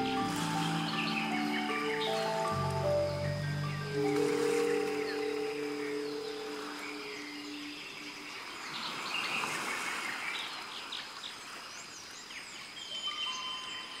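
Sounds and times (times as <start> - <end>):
held music notes: 0.0 - 8.4
steady thin high tone: 0.0 - 8.6
birds chirping and calling: 0.0 - 10.0
outdoor ambience hiss: 0.0 - 14.0.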